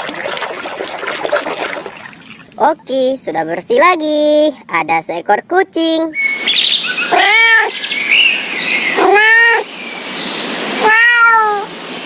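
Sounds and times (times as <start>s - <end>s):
cat meowing: 7.1s - 7.8s, 9.0s - 9.7s, 10.8s - 11.7s.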